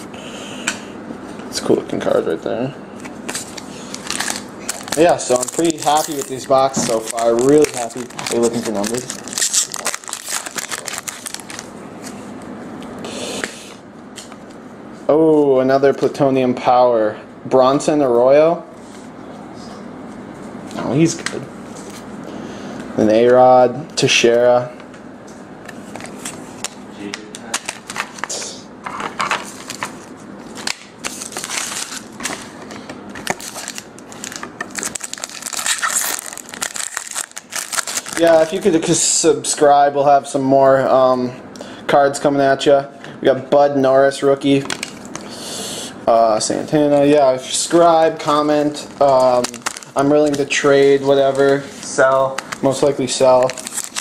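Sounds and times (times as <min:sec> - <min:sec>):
cards rustling: 0:03.0 - 0:12.2, 0:29.3 - 0:38.7, 0:47.8 - 0:54.0
wrapper crinkling: 0:03.3 - 0:11.7, 0:30.6 - 0:32.5, 0:33.2 - 0:38.7, 0:48.6 - 0:54.0.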